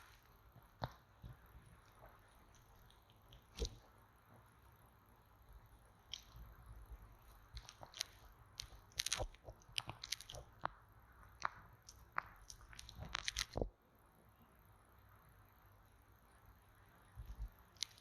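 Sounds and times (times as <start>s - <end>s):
crisp clicks and crackles: 0.0s - 4.0s, 6.0s - 13.7s, 17.2s - 18.0s.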